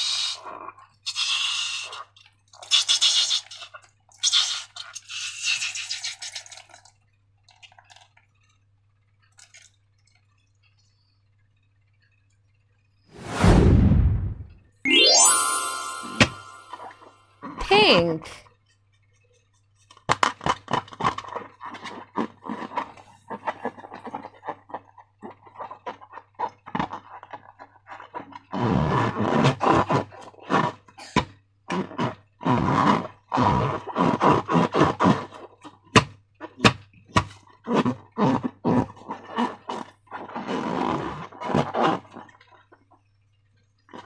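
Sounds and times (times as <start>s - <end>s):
slime squelching: 20.3s - 30.5s.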